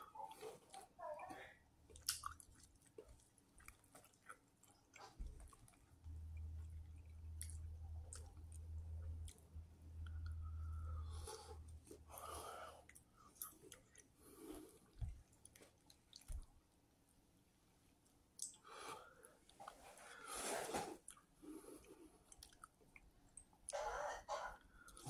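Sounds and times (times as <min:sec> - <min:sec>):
person chewing noodles: 0:01.8 - 0:16.5, 0:20.9 - 0:23.6.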